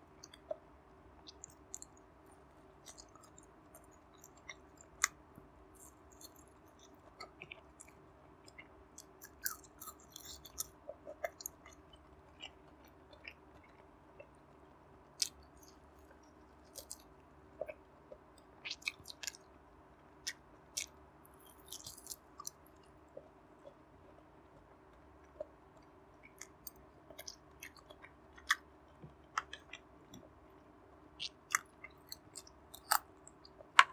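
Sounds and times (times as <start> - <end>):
person chewing close to microphone: 0.1 - 0.6, 1.2 - 2.0, 2.7 - 14.4, 15.2 - 19.5, 20.2 - 30.4, 31.2 - 33.9
wet mouth clicks and smacks: 2.8 - 5.2, 15.2 - 19.4, 26.2 - 28.6, 31.2 - 33.9.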